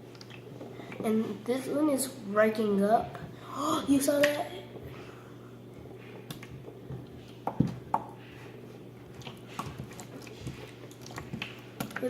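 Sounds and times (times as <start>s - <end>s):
slime squelching by hand: 5.8s - 12.0s.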